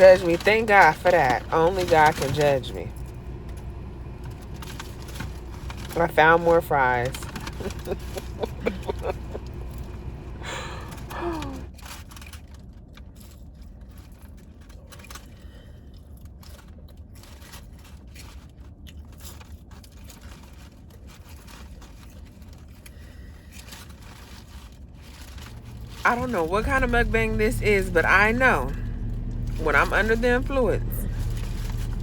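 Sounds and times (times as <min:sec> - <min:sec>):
low steady rumble: 0:00.0 - 0:32.0
person chewing fries: 0:07.3 - 0:26.0
hummed or gasped vocal sound: 0:10.4 - 0:11.7.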